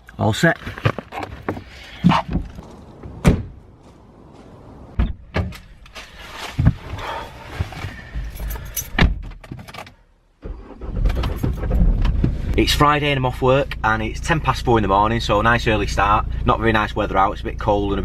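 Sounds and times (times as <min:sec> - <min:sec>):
rustling: 0:05.6 - 0:08.7
keys jangling: 0:08.3 - 0:09.0.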